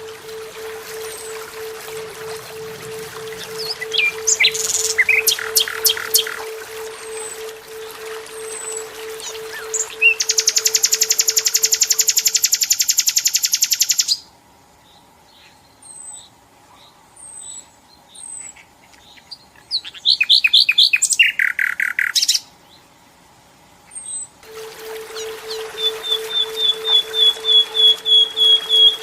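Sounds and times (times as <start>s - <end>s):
nightingale singing: 0.0s - 14.0s, 24.4s - 29.0s.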